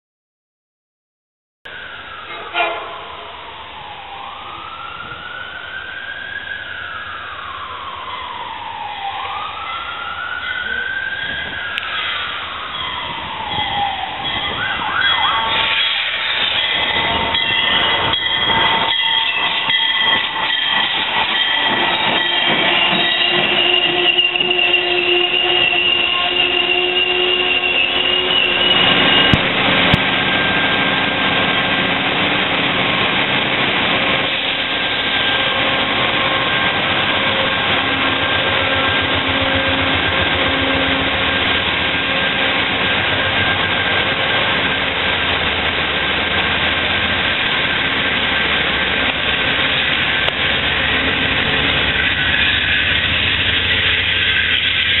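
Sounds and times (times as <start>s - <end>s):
diesel locomotive engine rumbling: 1.7s - 55.0s
train wheels squealing: 10.4s - 29.4s, 34.3s - 44.9s, 51.0s - 55.0s.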